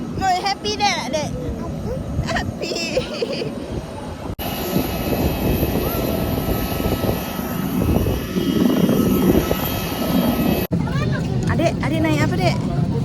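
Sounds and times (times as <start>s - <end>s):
jet airliner rush: 3.0s - 13.0s
high whining tones: 4.4s - 10.7s.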